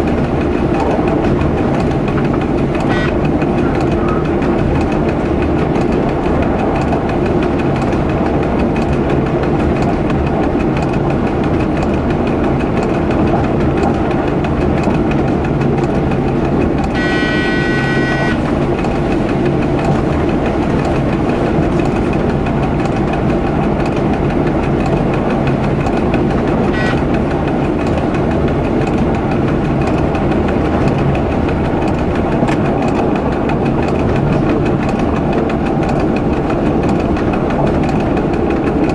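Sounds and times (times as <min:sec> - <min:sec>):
train rumbling on track: 0:00.0 - 0:38.9
pitched signal tone: 0:02.9 - 0:03.2, 0:17.0 - 0:18.4, 0:26.7 - 0:27.0.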